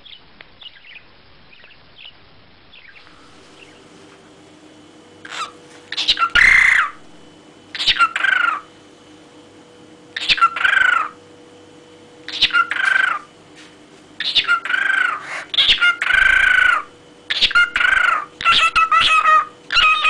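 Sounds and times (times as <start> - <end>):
faint steady hum: 0.0 - 20.0
bird calling loudly: 5.2 - 8.7, 10.1 - 11.2, 12.2 - 13.4, 14.2 - 20.0.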